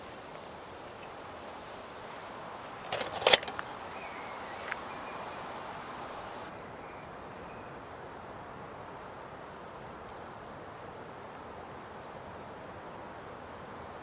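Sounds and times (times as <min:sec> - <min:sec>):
wind rushing through woodland: 0:00.0 - 0:14.0
sharp clicks and knocks: 0:02.8 - 0:03.7.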